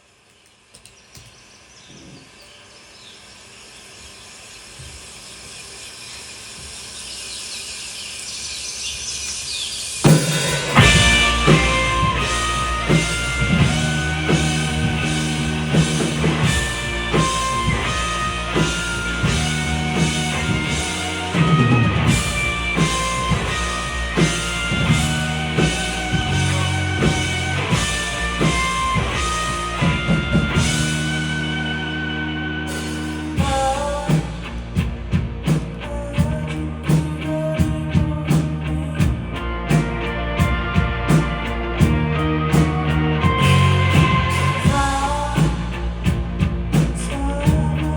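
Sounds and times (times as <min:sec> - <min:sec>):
drum kit: 0:10.0 - 0:47.9
rock band playing live: 0:10.0 - 0:47.9
electric guitar: 0:10.1 - 0:47.9.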